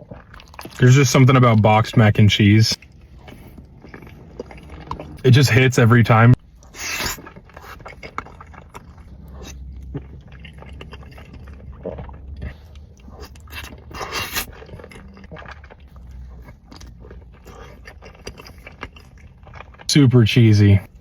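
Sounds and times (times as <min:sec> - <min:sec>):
soft chewing: 0:00.0 - 0:05.7, 0:06.3 - 0:21.0.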